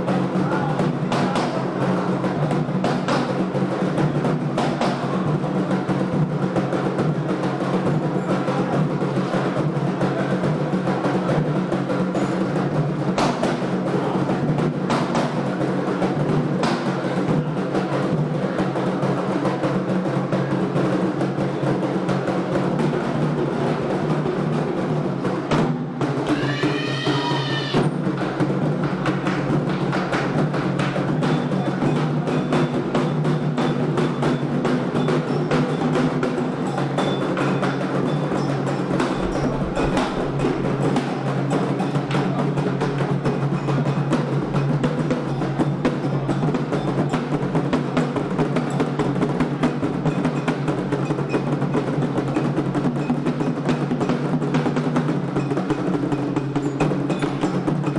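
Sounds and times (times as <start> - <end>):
hand drums playing fast rhythm: 0.0 - 57.9
wood block strikes: 26.2 - 27.9.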